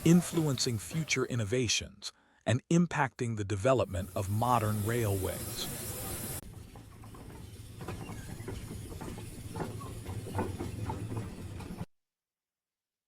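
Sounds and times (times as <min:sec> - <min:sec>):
steam train rumble with hiss: 0:00.0 - 0:01.3, 0:03.8 - 0:11.8.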